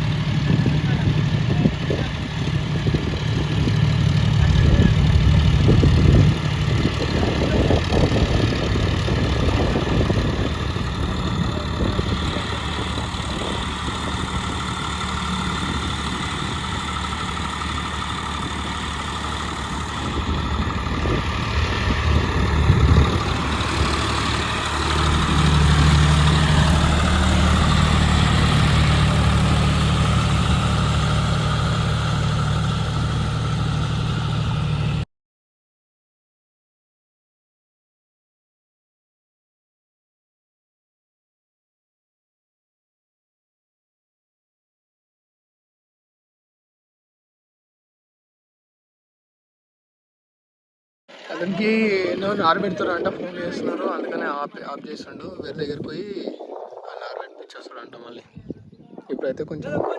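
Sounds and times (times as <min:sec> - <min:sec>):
heavy diesel engine running: 0:00.0 - 0:35.0, 0:51.1 - 0:54.2.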